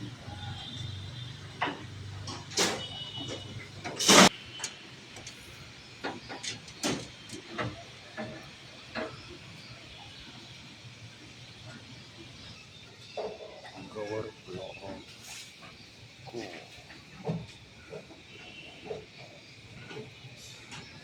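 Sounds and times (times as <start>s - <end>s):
knocks and scrapes of building work: 1.6s - 9.2s.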